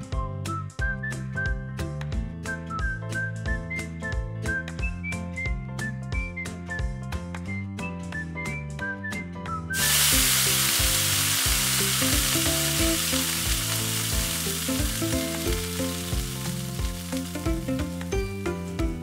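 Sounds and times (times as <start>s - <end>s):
food sizzling in hot oil: 9.8s - 18.4s.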